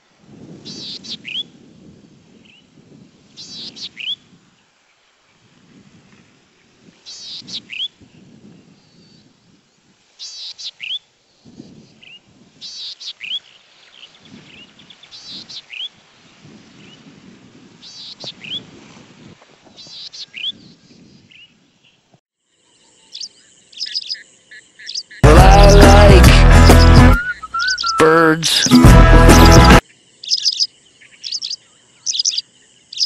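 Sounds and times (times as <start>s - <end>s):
steady bird notes: 24.8s - 32.4s
songbird call phrase: 24.8s - 33.0s.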